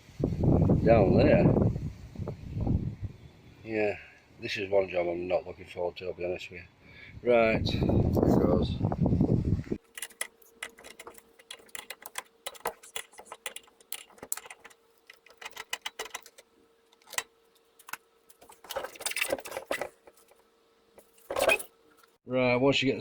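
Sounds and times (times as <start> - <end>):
faint steady hum: 1.8 - 23.0
metallic clicks of hand tools: 9.8 - 20.3.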